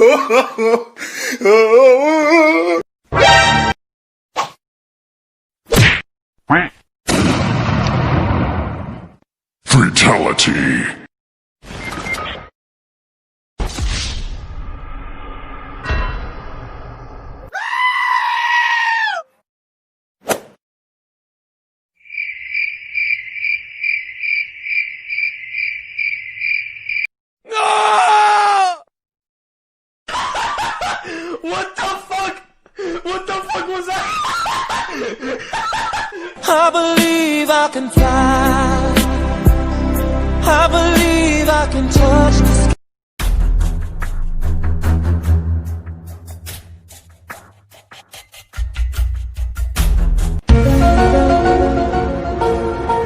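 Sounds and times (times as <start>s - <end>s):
cricket chirping: 22.0s - 27.1s.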